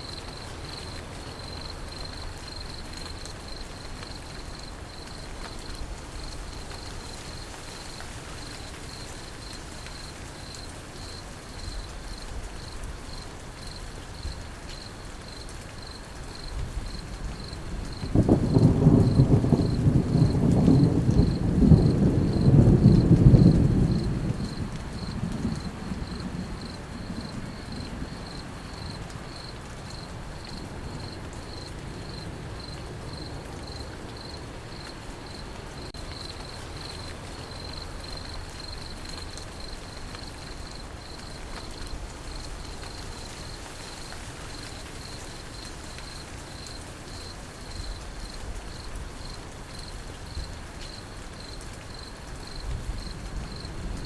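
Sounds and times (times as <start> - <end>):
crickets chirping: 0.0 - 54.0
steady rain: 0.0 - 54.0
low thunder rumble: 16.6 - 29.4, 52.4 - 54.0.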